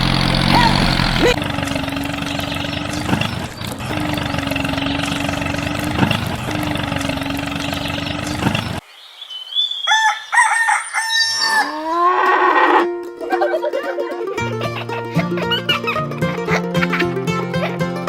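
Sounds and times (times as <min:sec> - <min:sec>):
rooster crowing: 0:09.8 - 0:12.8.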